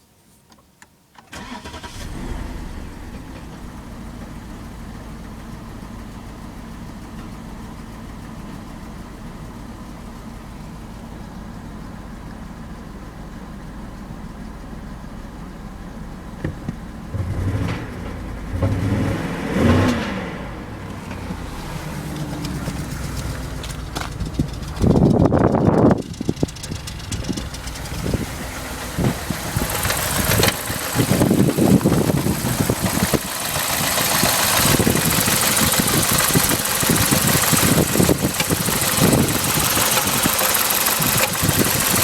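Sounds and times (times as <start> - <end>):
car engine starting and idling: 1.2 - 42.0
engine revving blips: 16.4 - 42.0.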